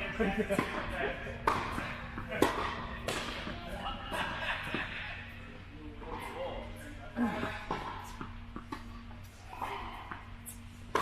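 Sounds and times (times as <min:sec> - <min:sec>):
steady low hum: 0:00.0 - 0:11.0
tennis ball struck by rackets: 0:00.5 - 0:03.6.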